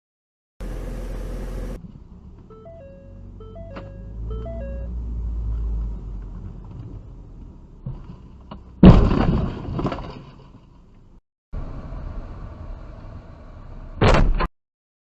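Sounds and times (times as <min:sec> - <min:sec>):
road and engine rumble: 0:00.6 - 0:14.5
car collision bang: 0:08.8 - 0:10.1, 0:14.0 - 0:14.5.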